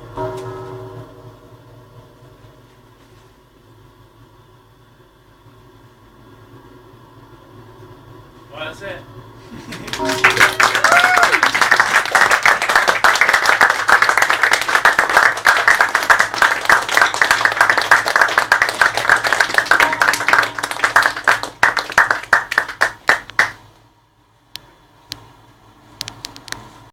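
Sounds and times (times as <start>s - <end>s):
audience applauding: 9.6s - 23.6s.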